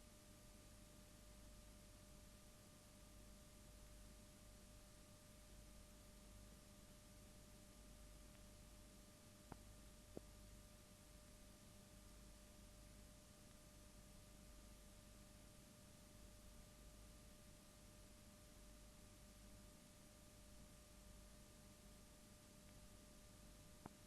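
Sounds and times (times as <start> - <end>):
faint hum tone: 0.0 - 24.0.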